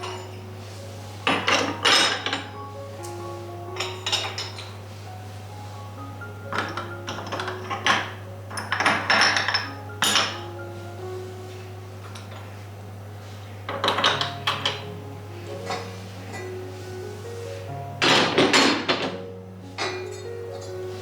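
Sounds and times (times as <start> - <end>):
dishes and cutlery clinking: 0.0 - 0.5, 1.2 - 3.2, 3.8 - 4.9, 6.5 - 10.5, 12.0 - 12.6, 13.7 - 15.0, 15.6 - 16.6, 18.0 - 21.0
soft background music: 0.0 - 21.0.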